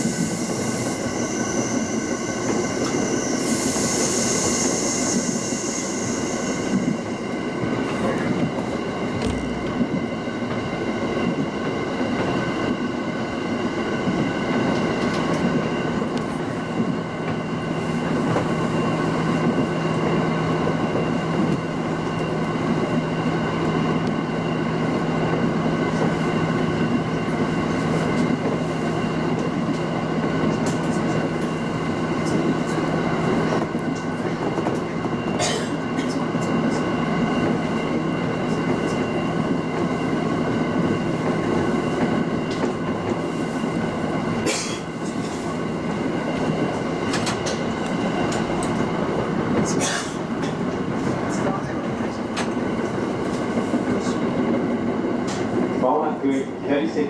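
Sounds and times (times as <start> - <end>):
train rolling noise: 0.0 - 57.0
steady hum: 9.2 - 10.3.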